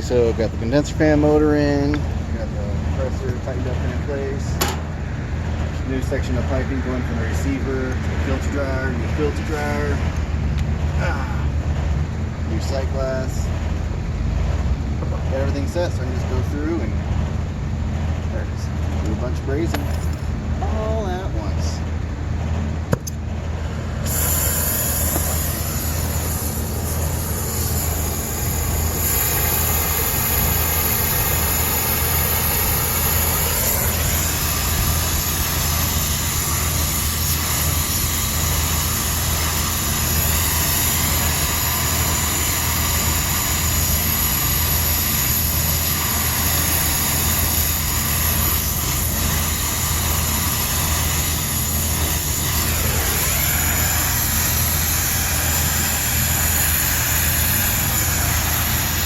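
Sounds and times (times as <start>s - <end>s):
low hum: 19.7s - 42.9s
torch flame rushing: 23.0s - 59.0s.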